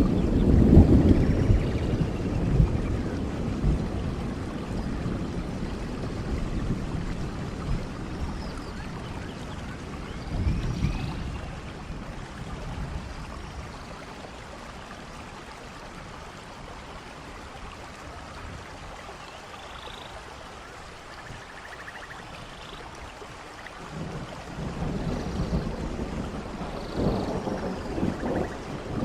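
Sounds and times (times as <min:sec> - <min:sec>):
thunder rumble: 0:00.0 - 0:13.8, 0:23.9 - 0:29.0
rain: 0:00.0 - 0:29.0.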